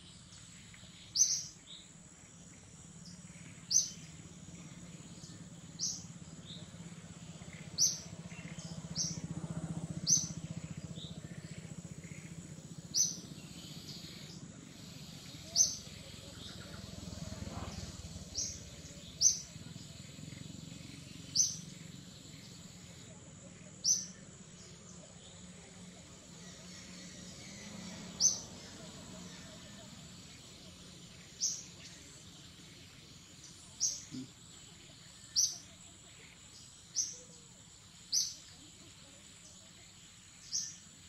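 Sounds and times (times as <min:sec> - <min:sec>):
outdoor ambience: 0:00.0 - 0:41.0.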